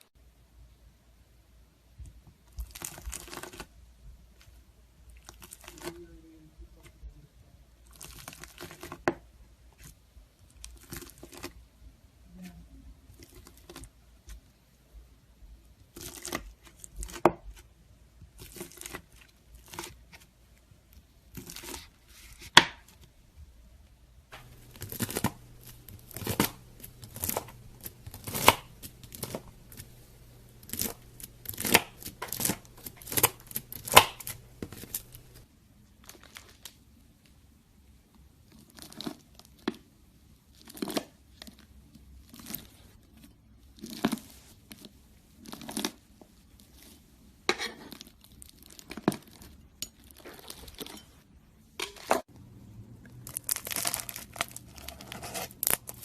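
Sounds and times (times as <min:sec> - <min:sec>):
faint background hum: 0:00.0 - 0:56.0
knife cutting crunchy slime: 0:24.4 - 0:35.4, 0:53.3 - 0:56.0.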